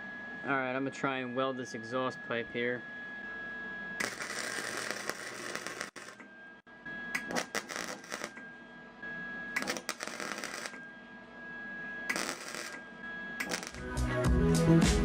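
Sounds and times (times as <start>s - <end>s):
arc welder crackling: 4.0s - 6.3s, 7.2s - 8.4s, 9.6s - 10.8s, 12.1s - 12.8s, 13.4s - 14.0s.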